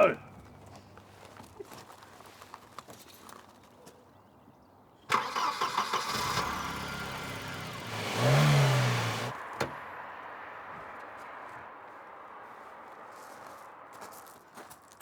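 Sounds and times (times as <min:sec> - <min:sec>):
car engine starting and revving: 0:05.1 - 0:10.2.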